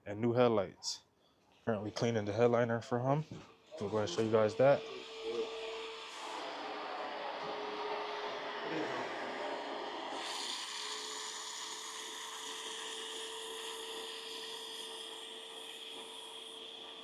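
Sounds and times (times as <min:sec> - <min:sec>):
small electric motor whirring: 0:03.6 - 0:17.0.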